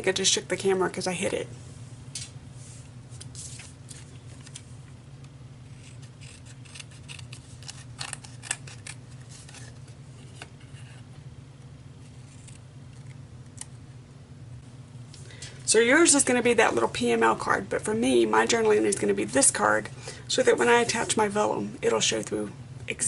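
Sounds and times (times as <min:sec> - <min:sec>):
steady low hum: 0:00.0 - 0:23.0
scissors snipping paper: 0:05.7 - 0:09.8.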